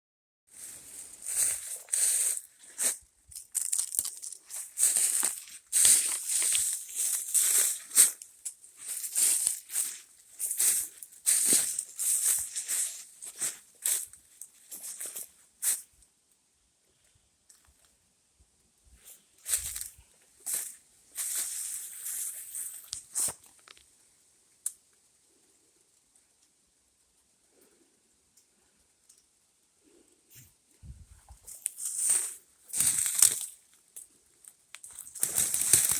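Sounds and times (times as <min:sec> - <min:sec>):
footsteps crunching dry leaves: 0:00.5 - 0:15.9, 0:19.0 - 0:23.6, 0:31.4 - 0:33.8, 0:34.8 - 0:35.9.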